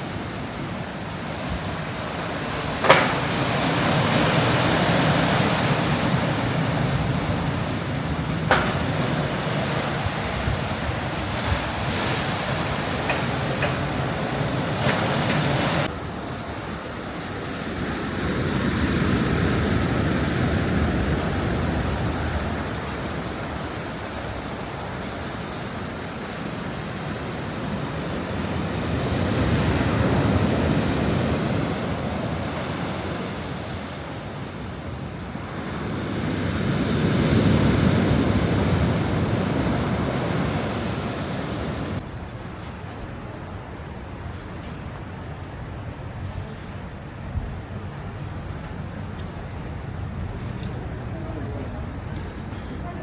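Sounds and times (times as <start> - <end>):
sea waves washing onto shore: 0.0 - 53.0
sharp knock: 2.8 - 3.4, 8.5 - 9.1.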